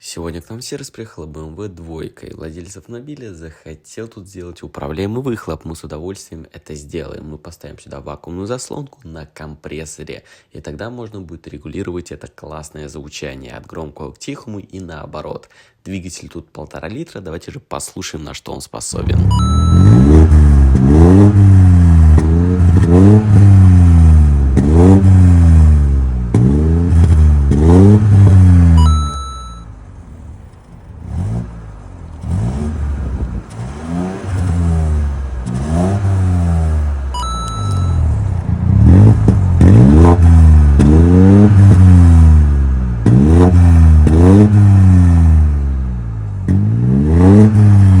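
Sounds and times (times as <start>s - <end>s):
car engine revving: 18.9s - 48.0s
short beep: 19.1s - 20.6s, 28.7s - 29.8s, 37.1s - 38.3s.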